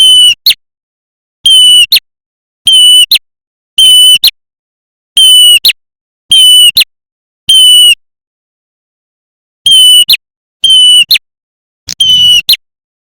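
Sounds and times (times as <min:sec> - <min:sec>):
bird whistled call and chirp: 0:11.9 - 0:12.6.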